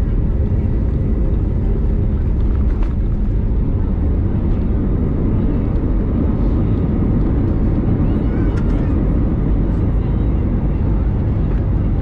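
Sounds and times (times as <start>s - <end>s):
aircraft engines rumbling: 0.0s - 12.0s.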